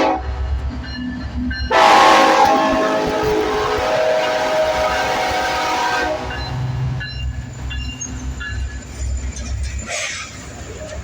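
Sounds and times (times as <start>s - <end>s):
locomotive horn chord: 0.0s - 0.3s, 1.7s - 6.7s
rush of passing train: 0.0s - 11.0s.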